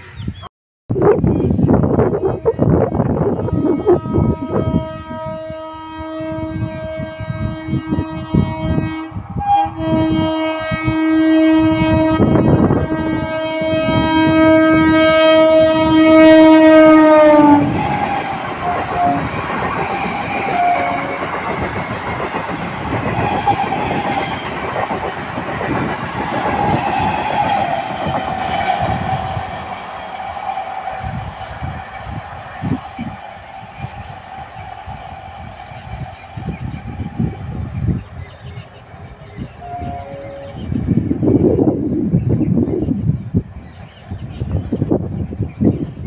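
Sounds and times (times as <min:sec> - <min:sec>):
train horn blast: 0:03.4 - 0:38.0, 0:39.4 - 0:40.9
train wheels knocking on rail joints: 0:17.7 - 0:30.2.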